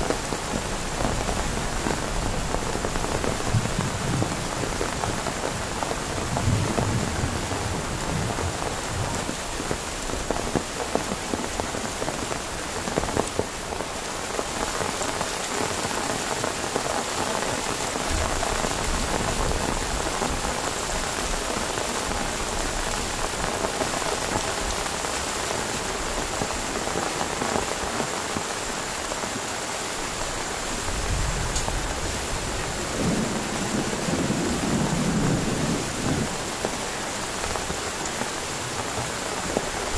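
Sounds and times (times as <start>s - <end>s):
heavy rain: 0.0s - 39.9s
thunder rumbling: 30.8s - 36.8s.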